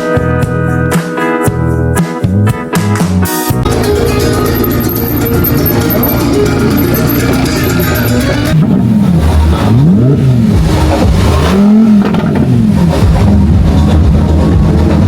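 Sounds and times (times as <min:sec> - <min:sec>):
background music: 0:00.0 - 0:15.0
car engine revving: 0:03.7 - 0:15.0.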